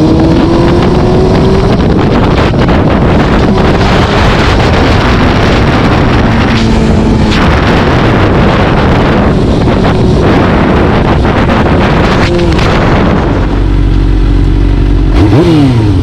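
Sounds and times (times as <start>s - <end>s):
vehicle engine running: 0.0s - 16.0s
wind buffeting microphone: 0.0s - 16.0s.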